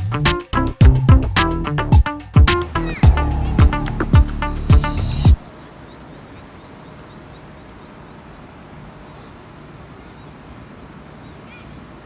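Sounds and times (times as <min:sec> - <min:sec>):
background music: 0:00.0 - 0:05.4
low outdoor background noise: 0:05.4 - 0:12.0.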